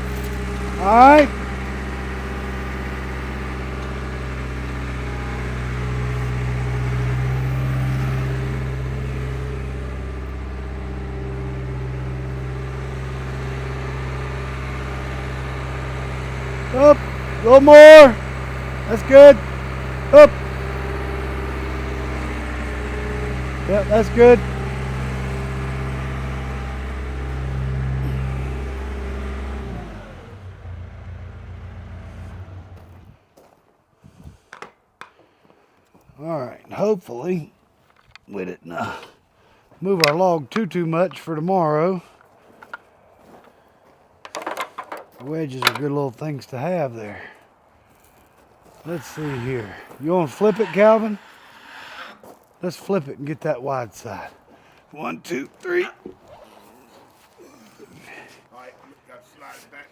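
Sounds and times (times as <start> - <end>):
skid steer engine running: 0.0 - 33.2, 48.1 - 56.4.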